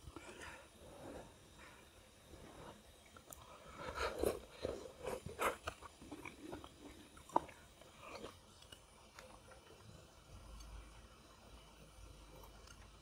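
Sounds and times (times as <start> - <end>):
biting and chewing food: 3.2 - 9.8.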